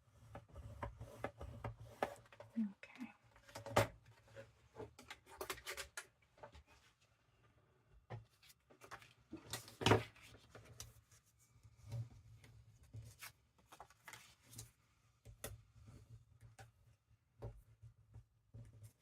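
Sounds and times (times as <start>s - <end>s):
paper rustling: 13.1s - 14.8s.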